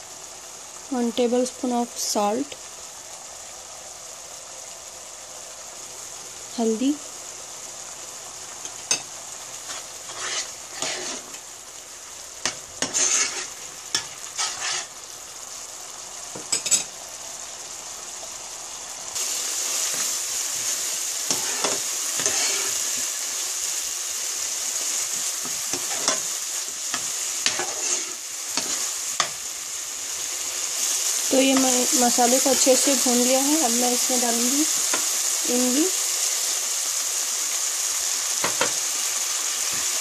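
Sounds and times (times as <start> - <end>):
paste sizzling in a pan: 0.0 - 40.0
metal spoon scraping pan: 9.7 - 11.4, 12.4 - 14.9, 21.3 - 22.9, 25.4 - 26.3, 26.9 - 29.4.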